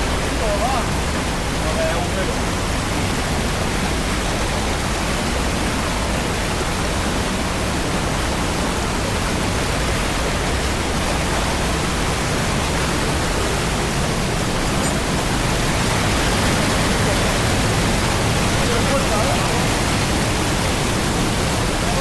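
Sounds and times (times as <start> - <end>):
flowing water rushing: 0.0 - 22.0.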